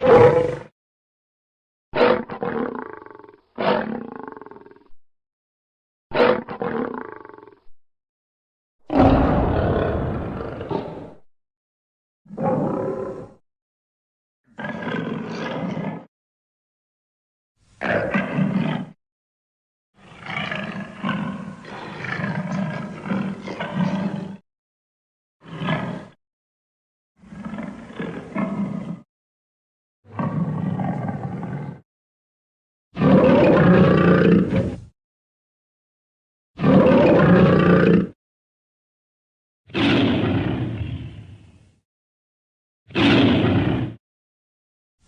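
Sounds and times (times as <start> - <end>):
lion roaring: 0.0 - 0.7, 2.0 - 4.9, 6.2 - 7.6, 8.9 - 11.3, 12.3 - 13.4, 14.5 - 16.1, 17.8 - 19.0, 20.0 - 24.4, 25.4 - 26.2, 27.3 - 29.0, 30.1 - 31.8, 33.0 - 34.9, 36.6 - 38.2, 39.7 - 41.2, 42.9 - 44.0.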